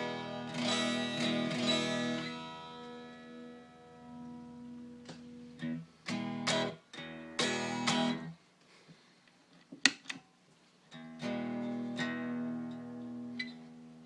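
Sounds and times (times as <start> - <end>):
electric guitar chords: 0.0 - 8.3.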